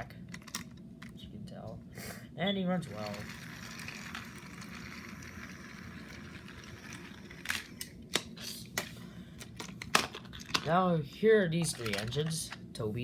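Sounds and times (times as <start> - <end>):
toy train motor whirring: 2.8 - 8.6.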